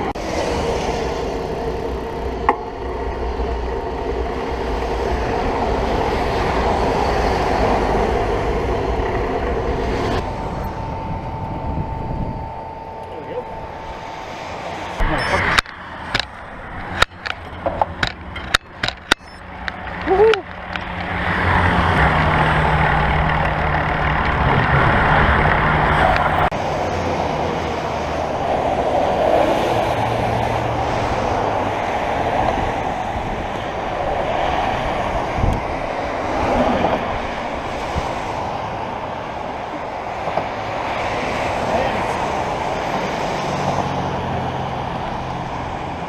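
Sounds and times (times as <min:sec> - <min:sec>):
road traffic rushing: 0:00.0 - 0:46.0
sharp clicks: 0:15.0 - 0:21.2.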